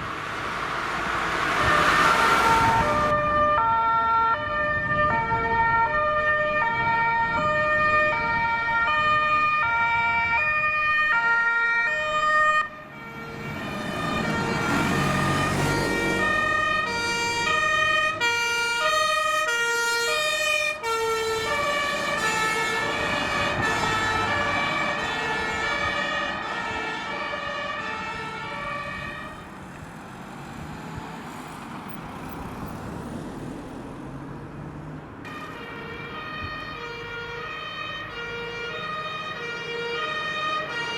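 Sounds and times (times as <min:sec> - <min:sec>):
vehicle rushing past: 0:00.0 - 0:03.6, 0:12.8 - 0:18.7
two-tone fire engine sirens: 0:00.0 - 0:29.8, 0:35.2 - 0:40.9
engine and tyre noise: 0:00.0 - 0:40.9.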